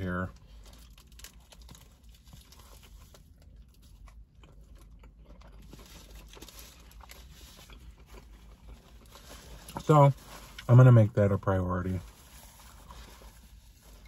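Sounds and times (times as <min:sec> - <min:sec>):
paper wrapper crinkling: 0:05.5 - 0:10.8.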